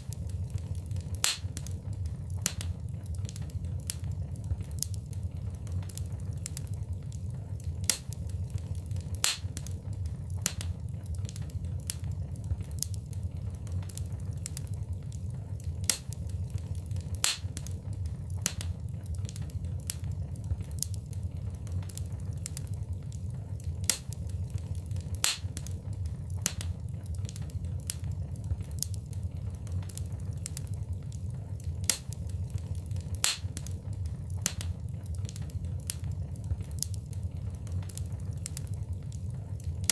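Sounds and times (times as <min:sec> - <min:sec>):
low rumble of flames: 0:00.0 - 0:39.9
wood fire snapping and popping: 0:00.0 - 0:39.9.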